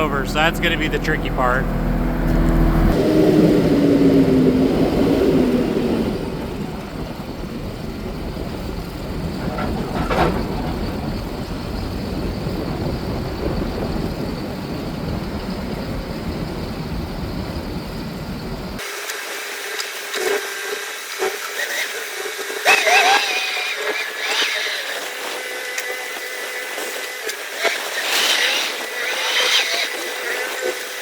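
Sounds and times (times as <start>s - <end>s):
forklift engine rumble: 0.0s - 18.8s
metal clank: 9.3s - 11.5s.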